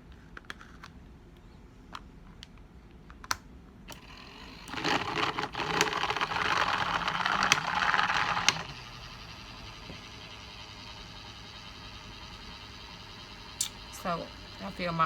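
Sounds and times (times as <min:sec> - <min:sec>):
motorised washer whirring rattle: 0:03.9 - 0:15.0.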